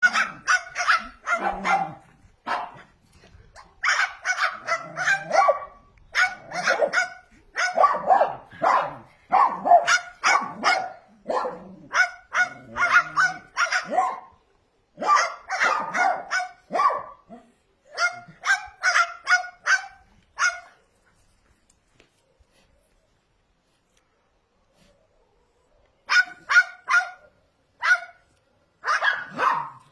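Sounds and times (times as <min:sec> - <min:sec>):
cockatoo imitating dog barks: 0:06.2 - 0:14.2.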